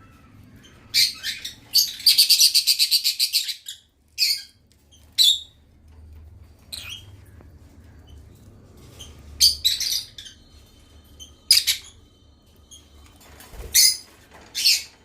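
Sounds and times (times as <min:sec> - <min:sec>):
lovebirds chirping: 0:00.0 - 0:05.6, 0:06.5 - 0:15.0.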